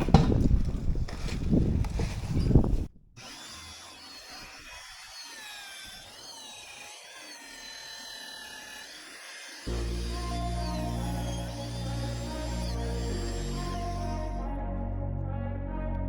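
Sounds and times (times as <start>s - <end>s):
drill boring through steel: 3.2s - 14.4s.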